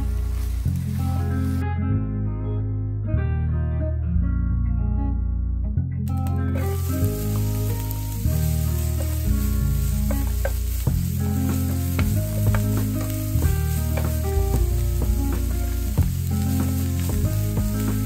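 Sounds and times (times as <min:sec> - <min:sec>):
onion sizzling in oil: 0:00.0 - 0:01.6, 0:06.2 - 0:18.0
background music low notes: 0:00.0 - 0:18.0
spatula scraping and tapping pan: 0:06.5 - 0:18.0.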